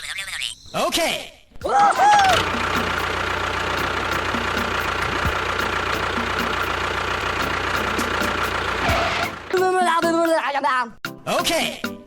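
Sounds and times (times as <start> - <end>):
motor whining and humming: 2.0 - 9.5.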